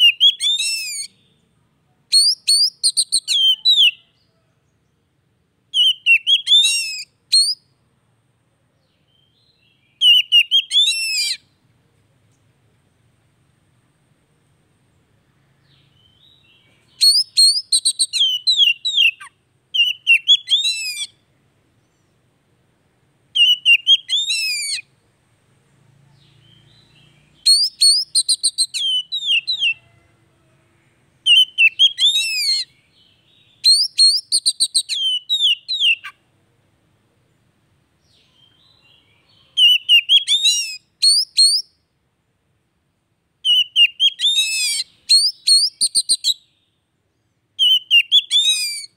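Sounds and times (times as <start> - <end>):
bird singing whistled trills: 0.0 - 1.5, 2.1 - 4.2, 5.7 - 7.7, 8.9 - 11.5, 15.6 - 21.2, 23.4 - 24.9, 26.2 - 29.9, 31.2 - 36.2, 38.1 - 41.9, 43.4 - 46.8, 47.6 - 48.9
soft bird twittering: 15.6 - 21.2, 26.0 - 30.0, 30.9 - 36.2, 38.0 - 41.9.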